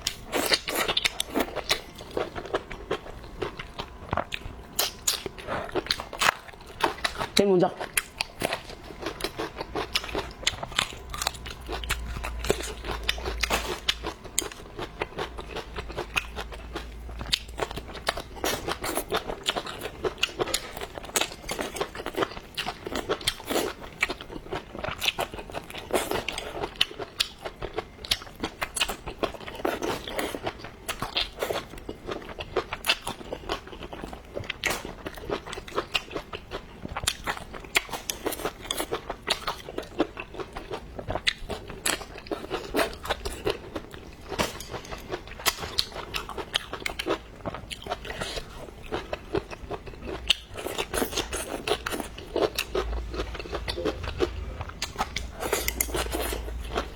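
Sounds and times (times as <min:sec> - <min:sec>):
person chewing and crunching food: 0:00.0 - 0:56.9.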